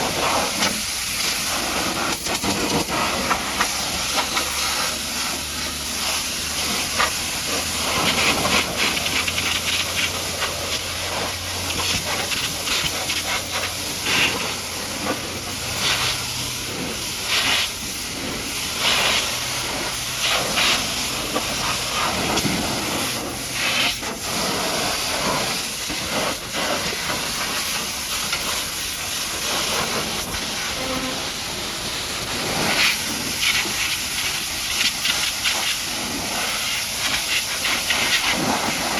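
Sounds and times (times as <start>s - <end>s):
high-pressure water jet hissing: 0.0s - 38.9s
low steady hum: 0.9s - 34.4s.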